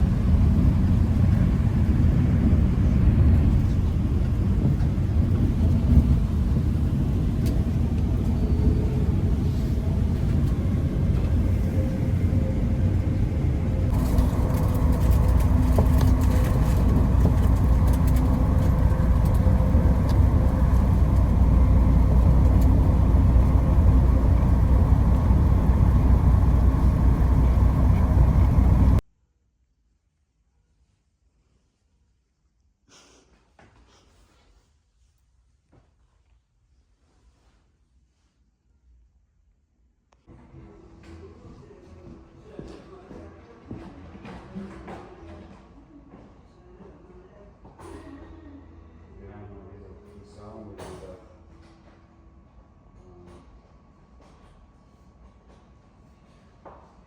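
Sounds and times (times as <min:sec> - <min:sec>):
moving vehicle rumble: 0:00.0 - 0:29.0.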